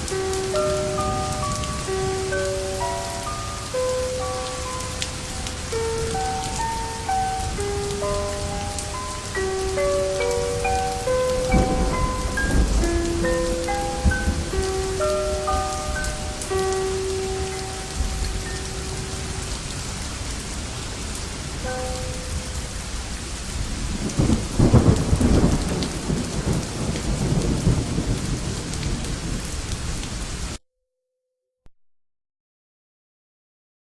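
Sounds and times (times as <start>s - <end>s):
soft held musical notes: 0.0s - 19.5s
steady rain falling: 0.0s - 30.6s
thunder rolling: 0.5s - 3.4s, 9.7s - 29.5s.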